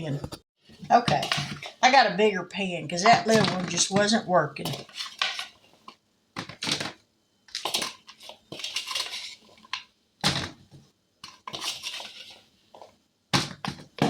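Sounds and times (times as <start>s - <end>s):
pan and utensils clattering: 0.2s - 1.8s, 3.0s - 7.0s, 7.6s - 10.6s, 11.2s - 12.9s.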